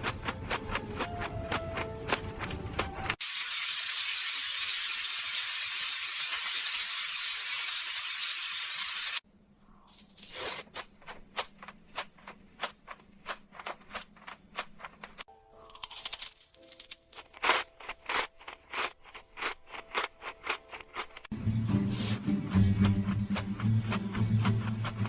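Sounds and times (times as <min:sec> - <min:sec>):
chewing crunchy food: 0:00.0 - 0:03.2, 0:13.3 - 0:21.3.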